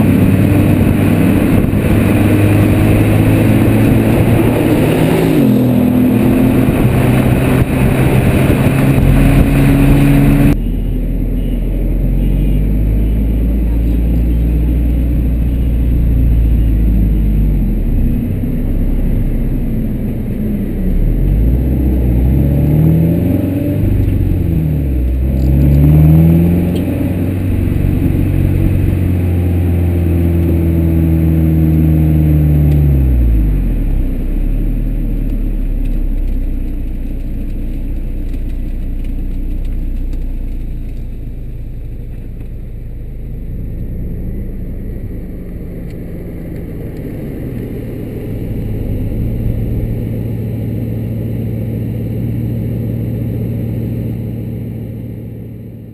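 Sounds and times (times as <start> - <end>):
car engines running hard: 0.0 - 55.9
road and wind rumble: 0.0 - 55.9.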